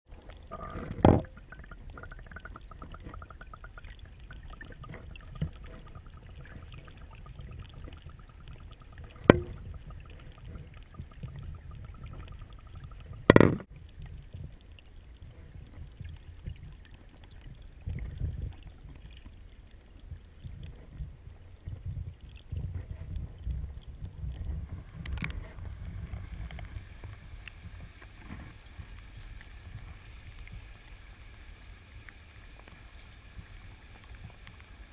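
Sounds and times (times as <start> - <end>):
muffled river water rushing: 0.1 - 34.9
sharp knocks: 9.3 - 9.6, 13.3 - 13.6.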